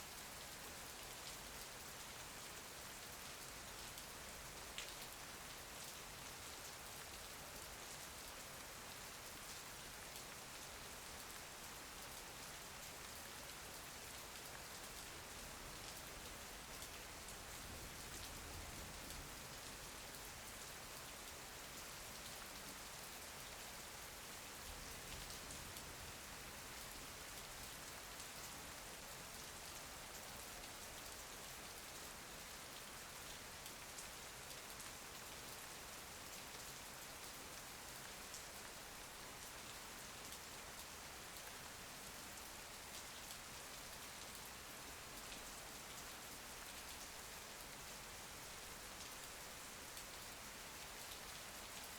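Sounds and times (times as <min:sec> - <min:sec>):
rain falling: 0:00.1 - 0:51.9.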